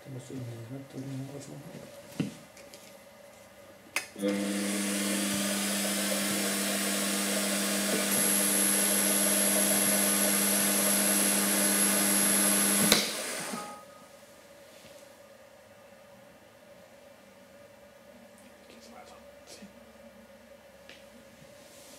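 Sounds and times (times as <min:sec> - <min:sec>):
lathe humming and whirring: 0:04.2 - 0:13.7
thin high whine: 0:09.7 - 0:14.5
lathe switch click: 0:12.8 - 0:13.2.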